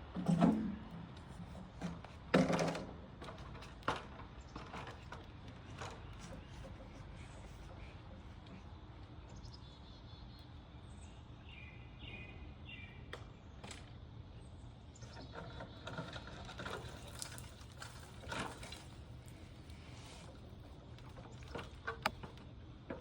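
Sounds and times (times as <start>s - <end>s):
rustling and clattering handling: 15.4s - 23.0s.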